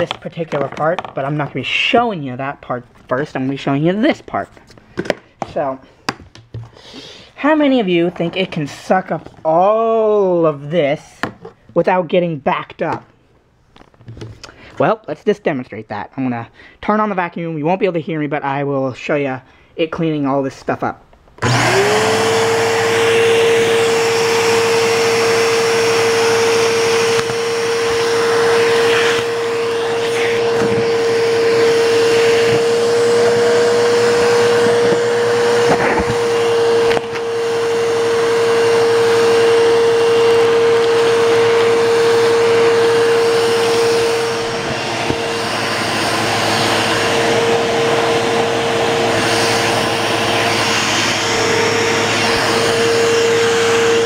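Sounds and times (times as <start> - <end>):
vacuum cleaner motor whining: 21.4 - 54.0.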